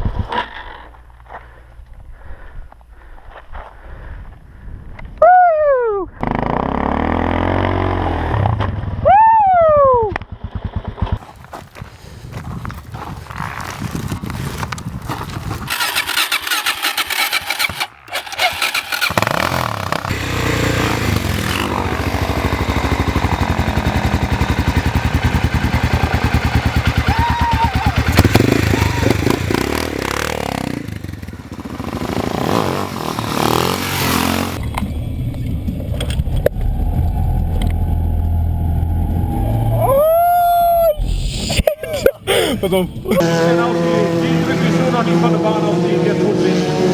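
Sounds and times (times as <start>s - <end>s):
motorcycle engine revving: 6.2s - 9.0s, 15.6s - 39.8s, 43.1s - 46.9s.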